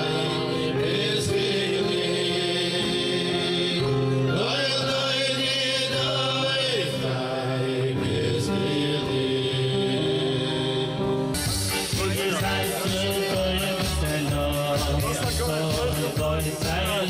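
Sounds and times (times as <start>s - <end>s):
band playing chords: 0.0s - 17.0s
person singing: 11.7s - 17.0s.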